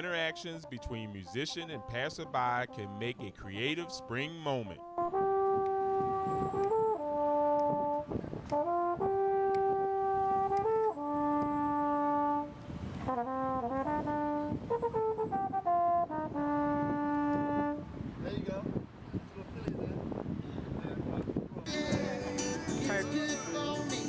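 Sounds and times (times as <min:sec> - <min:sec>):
solo horn melody: 0:00.0 - 0:18.0.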